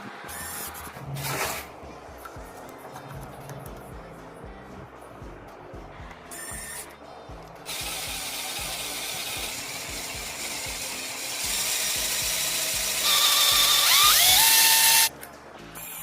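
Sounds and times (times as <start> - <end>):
music with a beat: 1.7 - 16.0
power tool running: 7.7 - 15.1.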